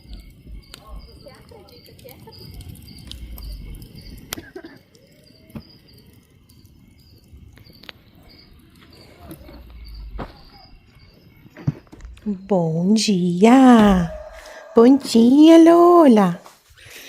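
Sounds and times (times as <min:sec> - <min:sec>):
crickets chirping: 0:00.0 - 0:17.0
sharp clicks: 0:02.1 - 0:04.5
low rumbles: 0:02.4 - 0:04.4, 0:05.9 - 0:16.4.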